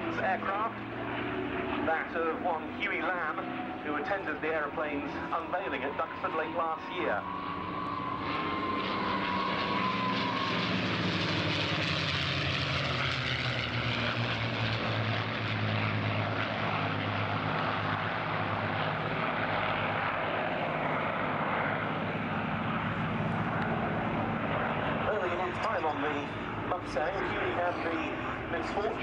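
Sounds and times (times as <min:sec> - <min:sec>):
propeller aircraft engine drone: 0:00.0 - 0:29.0.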